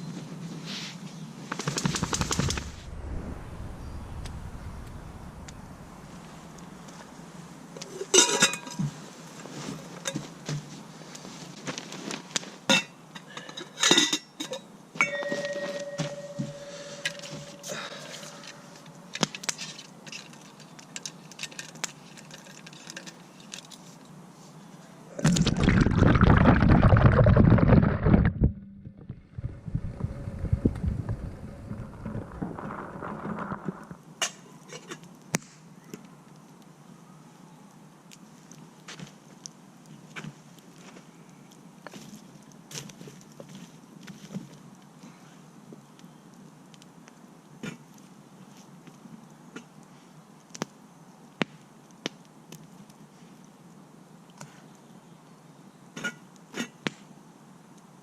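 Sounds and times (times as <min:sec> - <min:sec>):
loud rushing noise: 0:02.0 - 0:07.6.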